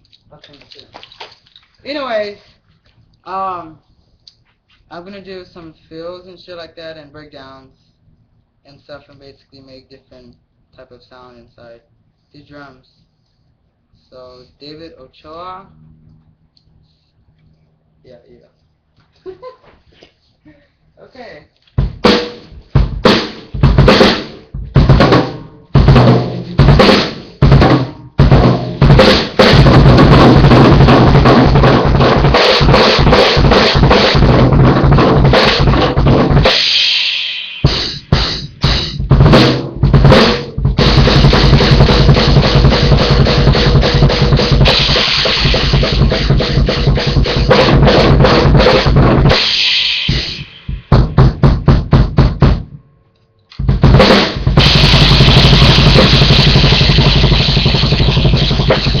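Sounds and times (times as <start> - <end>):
bass drum hits: 21.8 - 36.6, 37.6 - 49.5, 50.1 - 52.8, 53.6 - 59.0
fast dense drumming: 21.8 - 52.7, 53.6 - 59.0
snare drum hits: 21.8 - 52.8, 53.6 - 59.0
ringing cymbal crash: 36.4 - 39.0, 44.5 - 46.3, 49.3 - 50.9.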